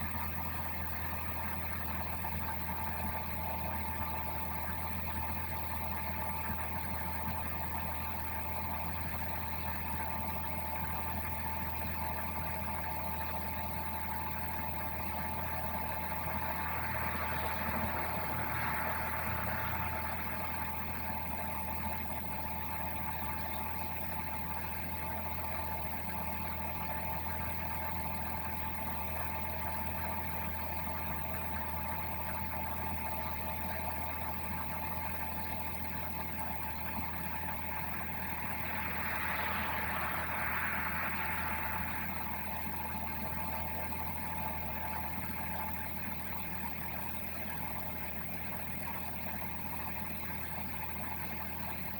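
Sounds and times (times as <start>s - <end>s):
car engine idling: 0.0s - 51.9s
thin steady whine: 0.0s - 51.9s
blower fan noise: 11.8s - 32.7s, 34.2s - 47.8s
air-conditioning blower: 15.5s - 21.6s, 37.0s - 44.9s.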